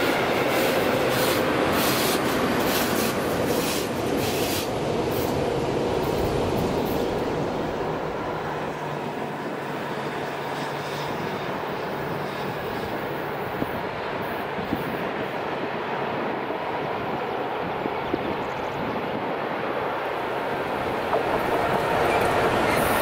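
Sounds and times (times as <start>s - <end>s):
electric train rumbling on rails: 0.0s - 23.0s.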